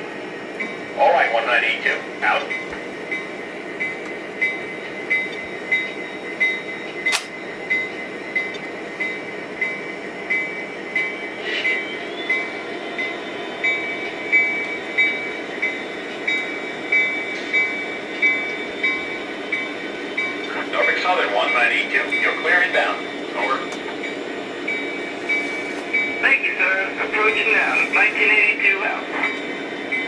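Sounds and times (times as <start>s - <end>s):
model trains rumbling: 0.0s - 30.0s
sharp click: 7.1s - 7.4s.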